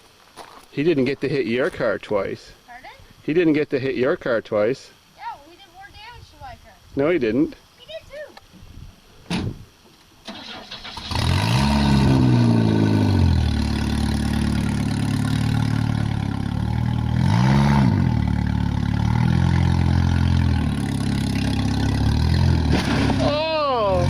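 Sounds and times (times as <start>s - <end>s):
car engine revving: 10.8s - 24.0s.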